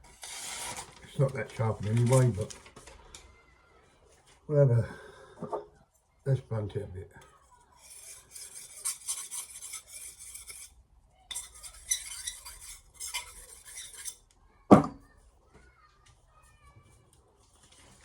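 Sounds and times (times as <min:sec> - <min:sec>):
knife scraping hard surface: 0:00.0 - 0:01.0, 0:07.4 - 0:14.3.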